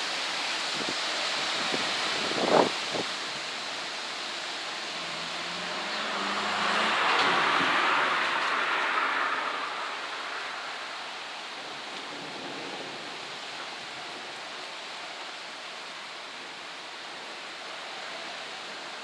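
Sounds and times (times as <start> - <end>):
rainstorm hiss: 0.0 - 19.0.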